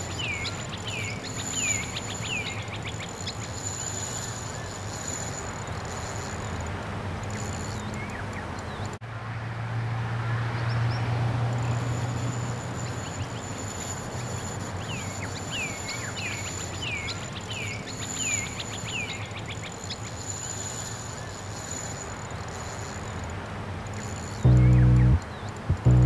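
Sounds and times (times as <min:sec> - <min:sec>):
faint high whine: 0:00.0 - 0:06.7, 0:23.9 - 0:26.0
waterside ambience: 0:00.0 - 0:09.0, 0:10.1 - 0:26.0
low hum: 0:24.4 - 0:26.0.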